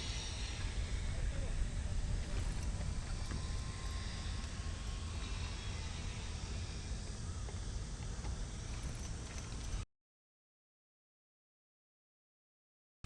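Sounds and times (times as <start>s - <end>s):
faint outdoor hiss: 0.0s - 9.8s.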